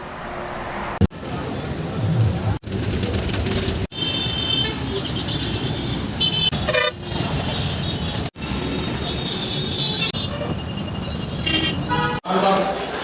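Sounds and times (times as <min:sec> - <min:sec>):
road traffic noise: 0:00.0 - 0:13.0
vehicle horn toots: 0:11.4 - 0:12.2.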